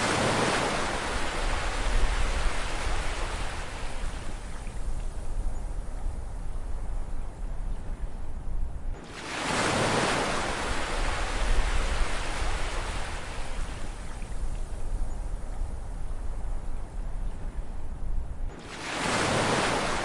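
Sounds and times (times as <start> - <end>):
ocean wave breaking on shore: 0.0 - 4.2, 9.0 - 13.7, 18.5 - 20.0.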